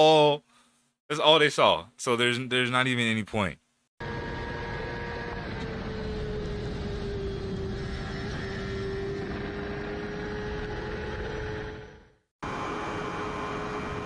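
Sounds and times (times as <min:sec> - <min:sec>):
motorcycle engine: 0:04.0 - 0:14.0
wind and road noise: 0:04.0 - 0:14.0.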